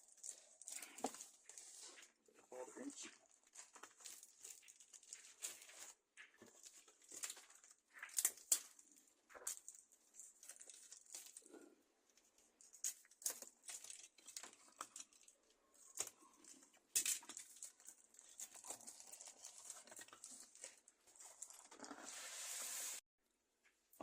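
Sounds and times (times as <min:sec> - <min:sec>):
packaging crinkling and rustling: 0:00.0 - 0:11.6, 0:12.2 - 0:22.1
packaging tearing: 0:17.2 - 0:22.1.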